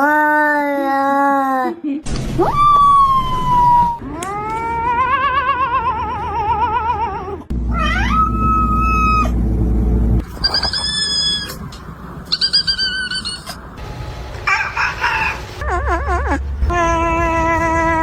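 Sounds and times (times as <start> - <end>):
cat yowling: 2.6 - 9.4, 10.4 - 11.6, 12.3 - 13.6.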